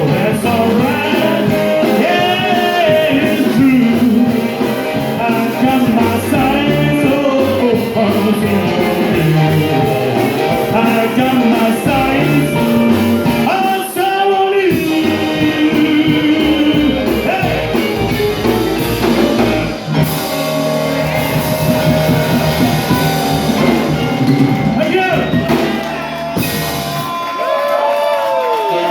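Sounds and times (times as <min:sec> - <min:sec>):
drum kit: 0:00.0 - 0:28.2
guitar: 0:00.0 - 0:28.9
rockabilly band playing: 0:00.0 - 0:28.9.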